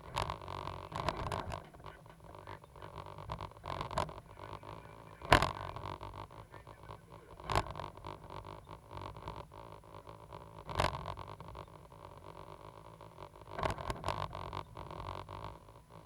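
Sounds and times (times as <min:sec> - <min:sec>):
excavator engine rumble: 0:00.0 - 0:08.5.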